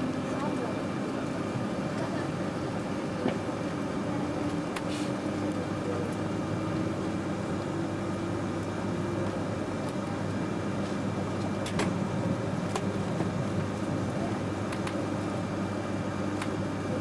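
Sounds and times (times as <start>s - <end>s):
train cabin rumble and hum: 0.0s - 17.0s.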